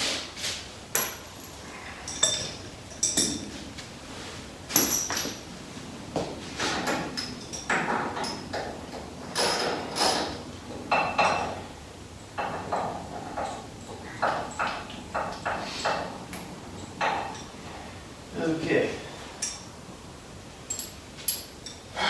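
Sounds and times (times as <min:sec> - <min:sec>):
metal hand tools clinking: 0:01.0 - 0:03.6, 0:04.8 - 0:05.4, 0:19.4 - 0:19.7, 0:20.7 - 0:21.9.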